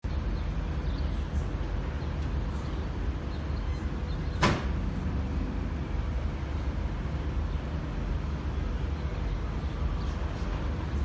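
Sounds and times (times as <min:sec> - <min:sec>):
low vehicle rumble: 0:00.0 - 0:11.0.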